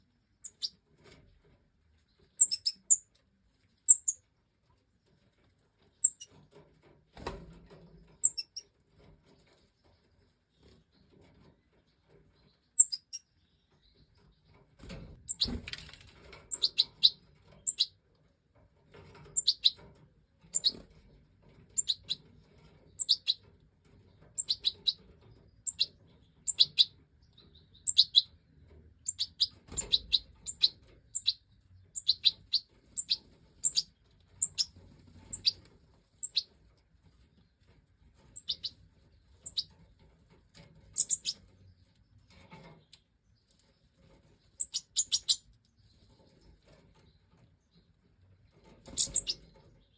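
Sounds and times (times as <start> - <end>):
goldfinch chirping: 0.4 - 0.8, 2.4 - 3.1, 3.9 - 4.2, 6.0 - 6.3, 8.2 - 8.6, 12.8 - 13.3, 16.5 - 17.9, 19.3 - 19.8, 20.5 - 20.9, 21.7 - 22.2, 22.9 - 23.4, 24.3 - 28.3, 29.0 - 35.6, 36.2 - 36.5, 38.4 - 38.8, 39.4 - 39.7, 41.0 - 41.4, 44.6 - 45.4, 48.9 - 49.9.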